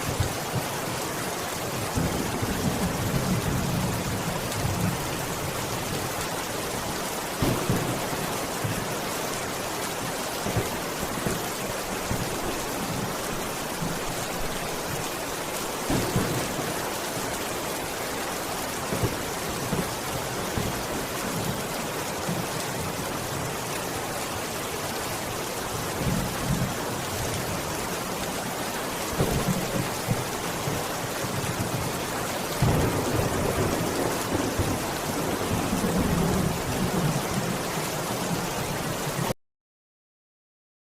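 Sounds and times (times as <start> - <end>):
steady rain falling: 0.0 - 39.4
low rumbles of thunder: 32.6 - 37.6.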